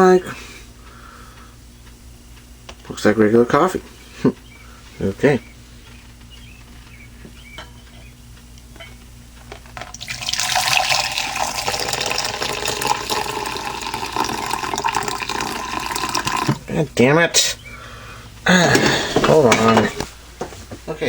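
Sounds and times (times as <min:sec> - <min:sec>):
coffee pouring into a mug: 0:09.9 - 0:16.6.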